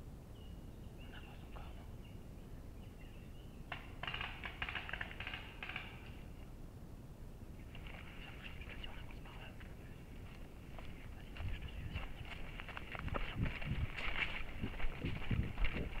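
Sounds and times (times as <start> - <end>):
steady low rumble: 5.1 - 16.0.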